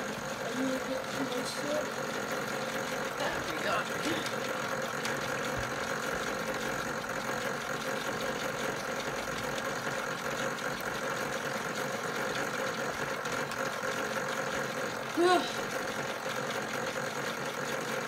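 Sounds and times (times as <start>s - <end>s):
toy washing machine motor humming: 0.0s - 18.0s.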